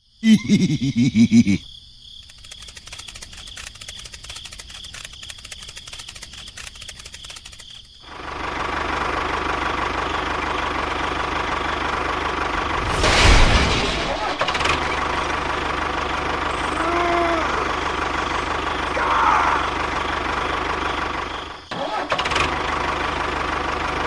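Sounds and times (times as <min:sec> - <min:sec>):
small motor running: 0:02.3 - 0:11.2, 0:14.7 - 0:21.6.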